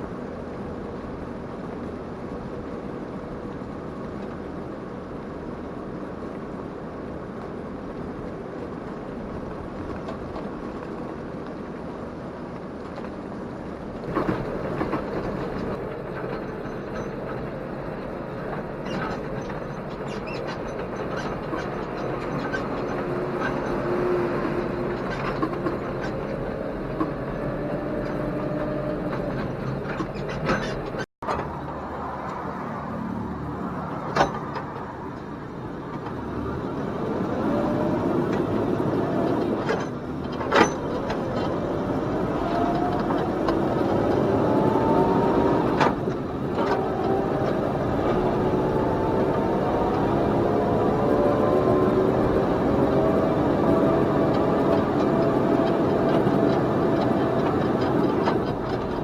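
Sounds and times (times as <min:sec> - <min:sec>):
rattling and clatter: 0:29.9 - 0:59.0
tractor engine running: 0:31.2 - 0:59.0.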